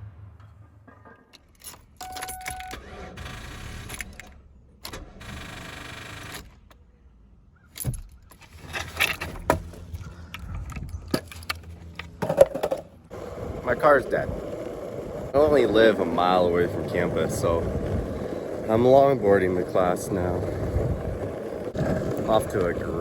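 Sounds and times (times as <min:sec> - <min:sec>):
car keys jangling: 0:01.4 - 0:02.8.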